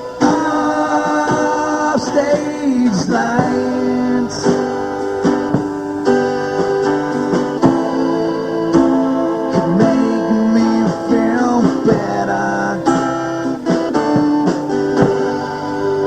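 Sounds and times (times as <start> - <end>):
live band music: 0.0 - 16.0
strummed guitar with bending notes: 0.0 - 16.0.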